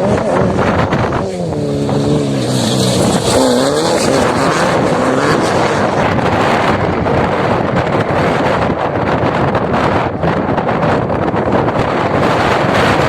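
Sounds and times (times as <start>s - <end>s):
vehicle engine revving: 0.0s - 9.2s
road noise: 0.0s - 13.0s
wind: 0.0s - 13.0s.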